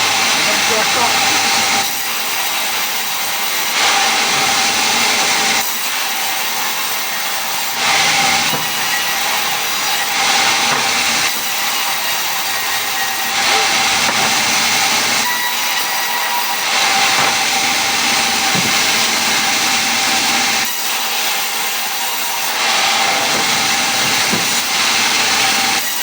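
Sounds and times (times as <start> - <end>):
power saw cutting wood: 0.0 - 26.0.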